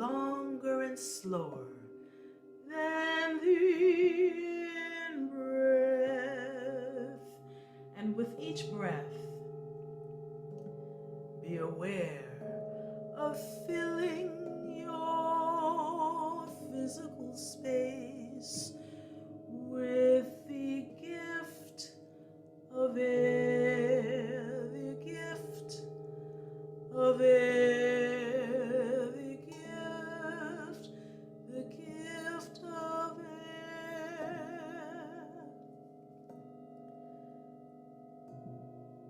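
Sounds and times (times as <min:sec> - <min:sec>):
woman singing wordlessly with vibrato: 0:00.0 - 0:01.9, 0:02.7 - 0:07.4, 0:08.0 - 0:09.3, 0:11.4 - 0:12.5, 0:13.2 - 0:18.9, 0:19.5 - 0:21.9, 0:22.7 - 0:25.8, 0:26.9 - 0:35.5.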